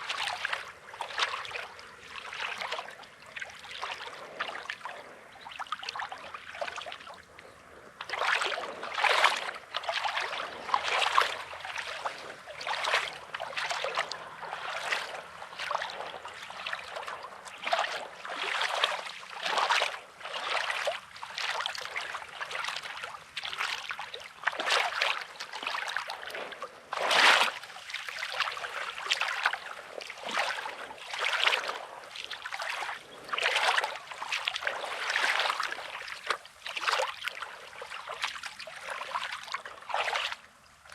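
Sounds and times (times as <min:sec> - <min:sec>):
small waves washing on shore: 0:00.0 - 0:40.9.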